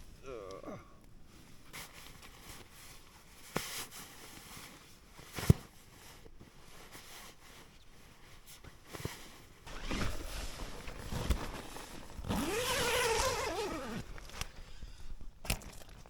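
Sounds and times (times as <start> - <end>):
fabric rustling: 1.4 - 14.5
tent zip pulled open: 9.6 - 14.6.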